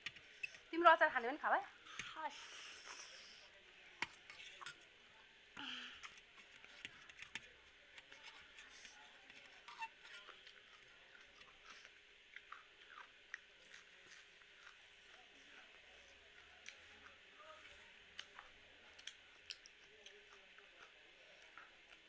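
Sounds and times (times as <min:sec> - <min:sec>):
chewing noodles: 0:08.0 - 0:17.3, 0:18.0 - 0:22.0.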